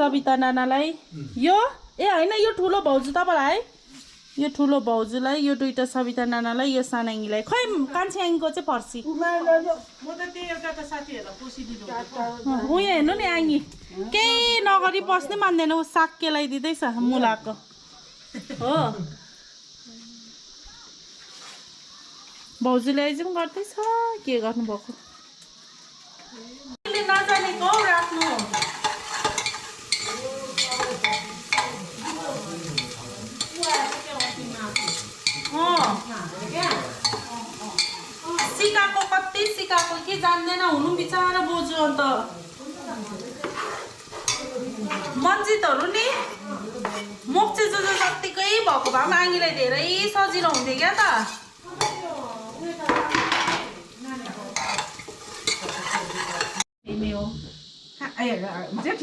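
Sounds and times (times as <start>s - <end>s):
utensils clicking and scraping: 26.9s - 40.1s, 54.2s - 56.6s.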